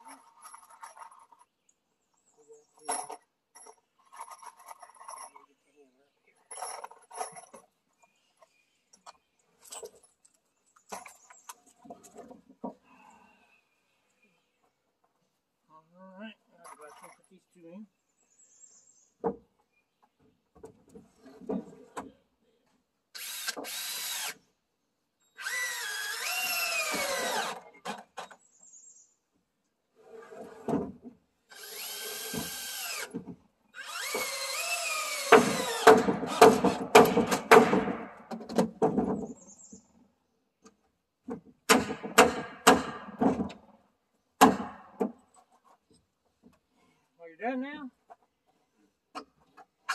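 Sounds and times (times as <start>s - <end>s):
cordless drill driving screws: 23.2s - 24.4s, 25.4s - 27.6s, 31.5s - 37.4s.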